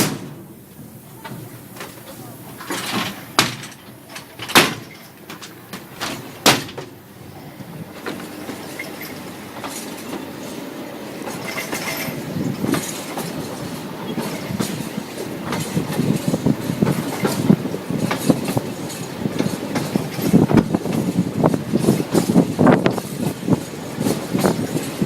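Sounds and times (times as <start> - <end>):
train wheels clattering over rails: 0.0 - 25.0.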